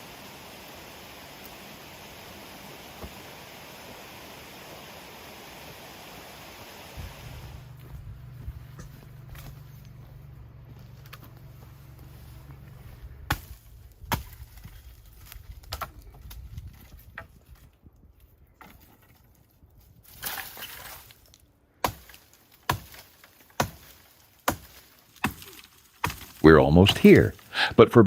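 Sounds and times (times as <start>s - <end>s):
low rumble: 7.2s - 14.0s
rustling crunch: 7.6s - 27.6s
wooden chopping strikes: 13.3s - 14.8s, 21.8s - 26.4s.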